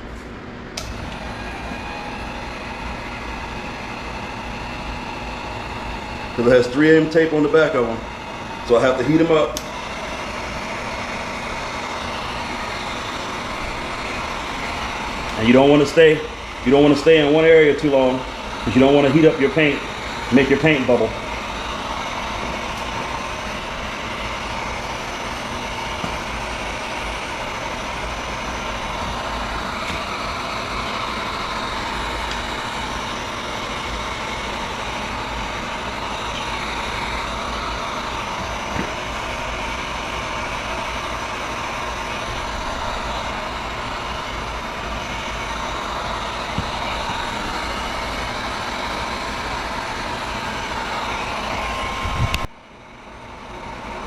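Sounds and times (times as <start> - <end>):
heat gun running: 0.0 - 54.0.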